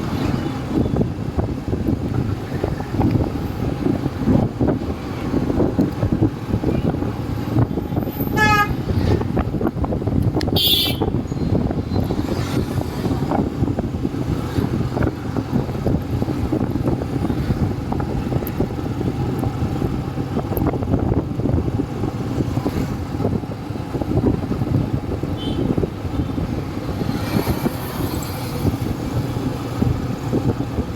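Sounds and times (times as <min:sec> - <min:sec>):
motorcycle engine and road rumble: 0:00.0 - 0:30.9
vehicle horn honking: 0:08.3 - 0:08.8, 0:10.5 - 0:11.2, 0:25.4 - 0:25.8.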